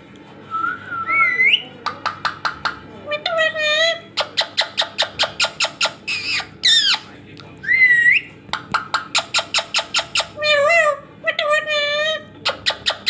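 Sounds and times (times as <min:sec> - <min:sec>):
parrot clicking chirps: 0:01.8 - 0:02.8, 0:04.2 - 0:07.0, 0:08.5 - 0:10.4.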